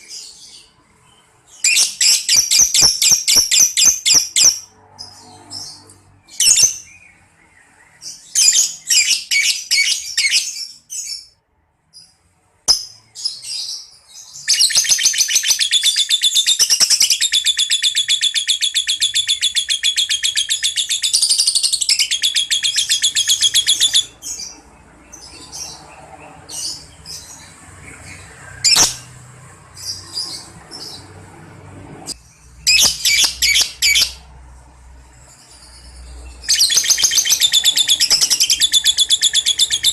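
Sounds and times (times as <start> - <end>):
shrill bird chirps: 0.0 - 29.1, 32.3 - 34.3, 35.3 - 39.9
bird chattering trill: 14.4 - 24.4, 32.7 - 34.2, 36.5 - 39.9.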